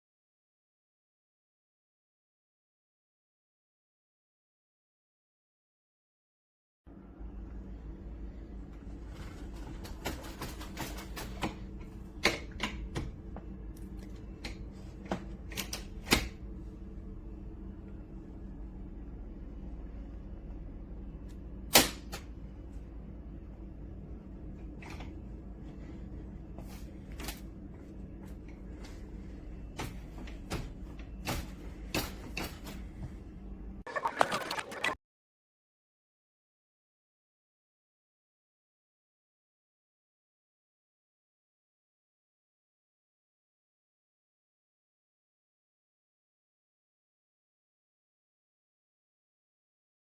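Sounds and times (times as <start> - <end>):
low hum: 16.4 - 31.9.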